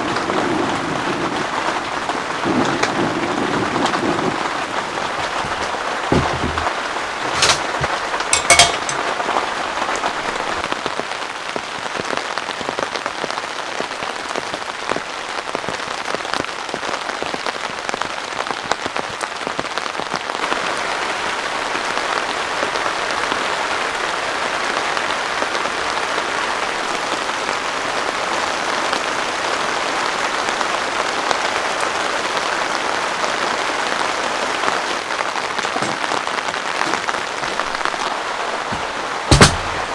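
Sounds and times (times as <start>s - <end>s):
heavy rain hiss: 0.0s - 10.6s
sharp knocks: 5.2s - 9.0s, 35.6s - 36.2s, 38.7s - 39.9s.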